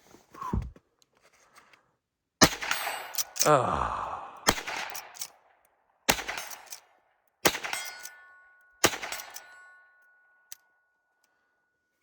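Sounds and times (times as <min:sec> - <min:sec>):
rifle shots echoing: 0:02.4 - 0:03.4, 0:04.4 - 0:05.3, 0:06.1 - 0:06.8, 0:07.4 - 0:08.1, 0:08.8 - 0:09.6
faint steady ring: 0:07.7 - 0:12.0.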